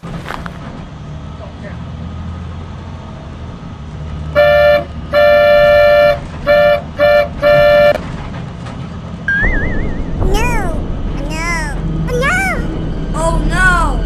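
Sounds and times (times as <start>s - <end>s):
low engine rumble: 0.0s - 14.0s
vehicle horn honking: 4.4s - 8.0s.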